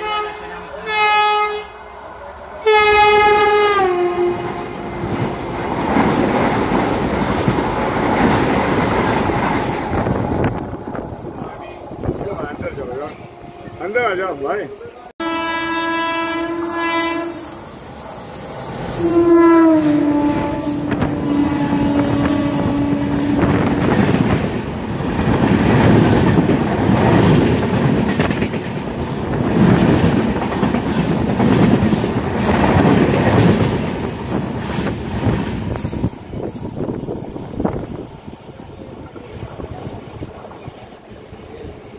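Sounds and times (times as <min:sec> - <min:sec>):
train horn blasts: 0:00.0 - 0:01.9, 0:02.6 - 0:05.0, 0:15.2 - 0:17.7, 0:18.9 - 0:23.8
train carriages rumbling on track: 0:00.0 - 0:14.6, 0:16.2 - 0:41.9.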